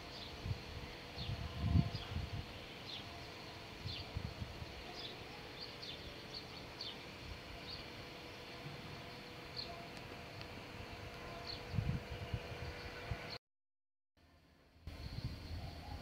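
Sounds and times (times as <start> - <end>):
small birds chirping: 0.0 - 13.4.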